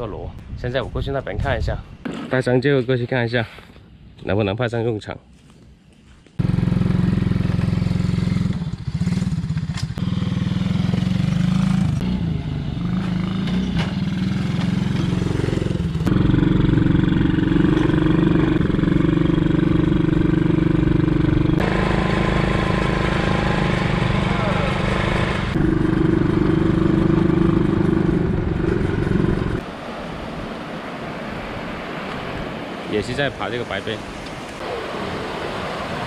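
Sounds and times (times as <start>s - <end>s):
motorcycle engine running: 6.4s - 29.6s.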